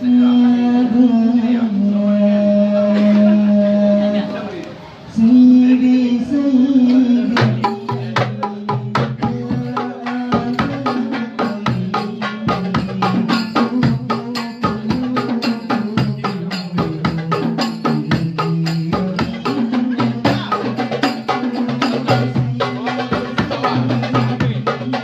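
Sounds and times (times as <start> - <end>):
goblet drums fast rhythm: 7.2 - 25.0.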